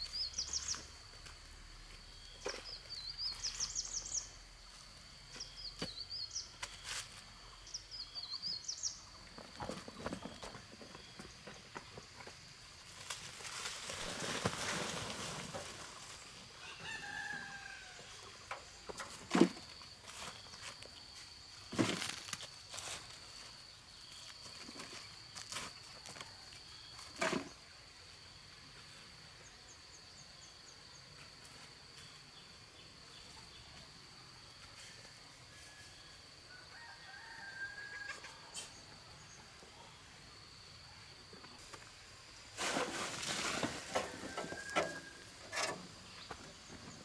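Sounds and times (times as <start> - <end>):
rooster crowing: 16.6 - 18.3, 35.6 - 38.6, 43.9 - 45.5.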